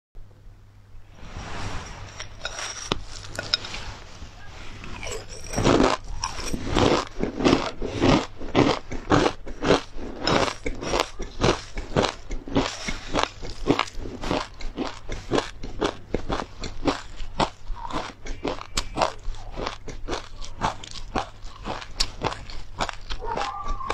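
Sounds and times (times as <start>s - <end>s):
spoon scraping a bowl: 1.4s - 15.4s
crunchy chewing: 2.1s - 23.9s.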